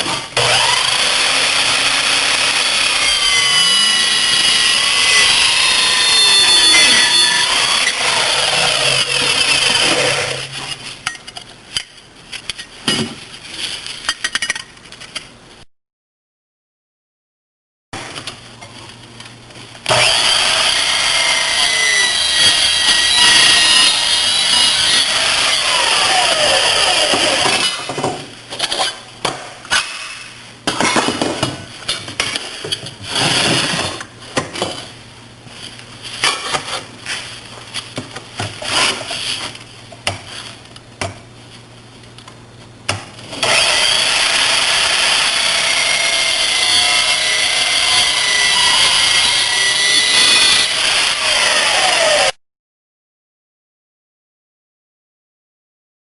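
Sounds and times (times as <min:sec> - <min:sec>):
miter saw cutting metal: 0:00.4 - 0:10.7, 0:19.9 - 0:28.0, 0:43.4 - 0:52.4.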